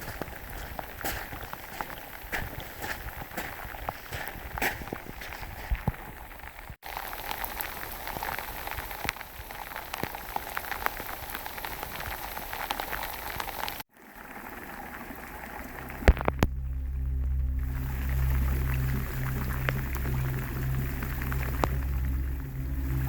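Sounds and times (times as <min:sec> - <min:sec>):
rain drops pattering: 0:00.0 - 0:23.0
steady low hum: 0:15.3 - 0:23.0.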